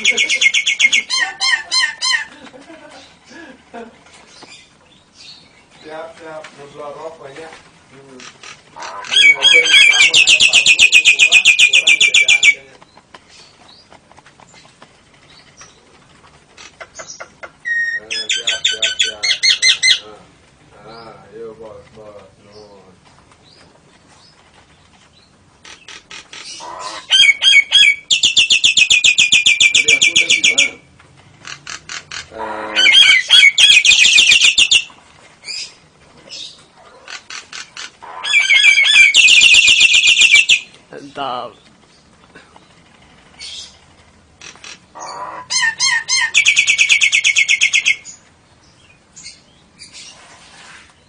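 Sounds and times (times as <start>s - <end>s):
rapid bird trill: 0.0s - 2.3s, 8.2s - 12.7s, 25.2s - 40.7s, 41.9s - 48.2s
songbirds calling: 0.0s - 51.0s.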